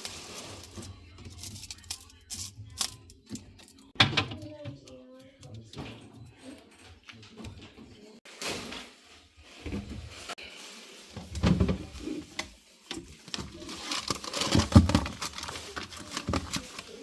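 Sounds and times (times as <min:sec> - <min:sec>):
handling rustling: 0:08.3 - 0:17.0.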